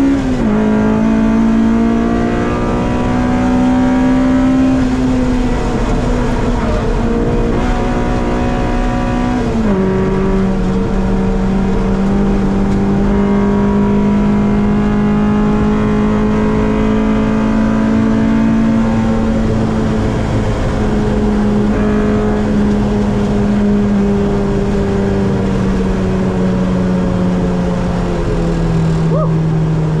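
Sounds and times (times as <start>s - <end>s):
race car engine at high revs: 0.0s - 30.0s.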